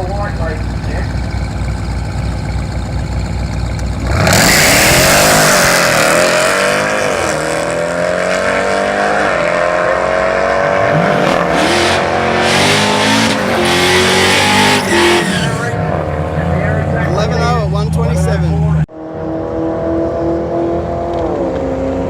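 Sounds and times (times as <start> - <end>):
car engine idling: 0.0 - 5.8, 12.0 - 18.9
car engine accelerating hard: 0.0 - 22.0.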